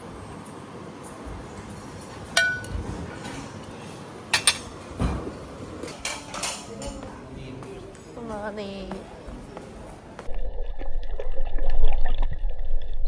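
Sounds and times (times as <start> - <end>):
hard objects clinking and knocking: 2.1 - 2.9.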